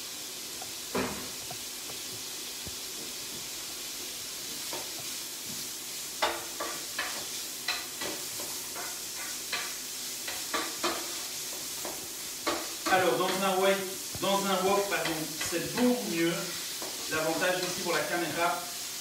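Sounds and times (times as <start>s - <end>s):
food sizzling in a frying pan: 0.0s - 19.0s
spatula scraping and knocking pan: 6.2s - 13.5s, 14.1s - 18.0s.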